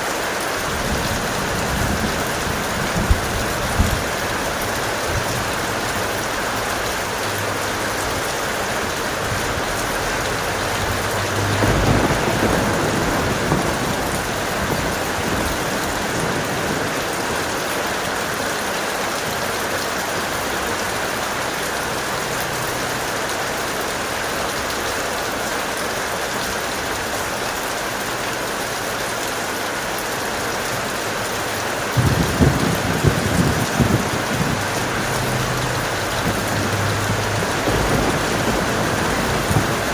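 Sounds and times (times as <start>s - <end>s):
heavy rain: 0.0s - 39.9s
thunder rumbling: 0.6s - 18.5s, 32.0s - 39.9s.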